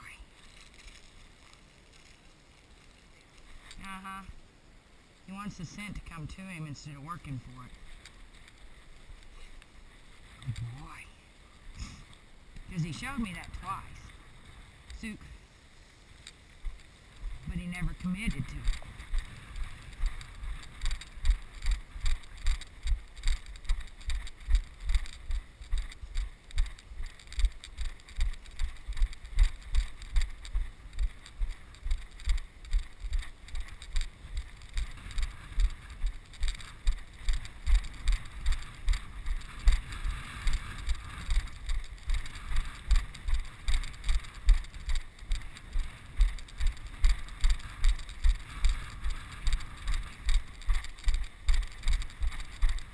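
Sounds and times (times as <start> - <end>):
wind noise on microphone: 6.0 - 52.9.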